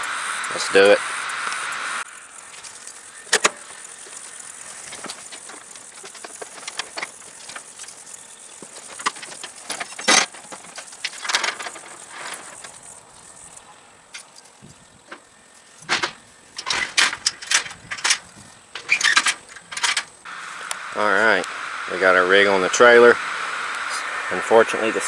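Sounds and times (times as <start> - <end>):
insects chirring: 0.0 - 25.0
knocks and clanks loading lawnmower: 2.5 - 3.7, 4.7 - 8.0, 8.6 - 12.8, 14.1 - 20.2.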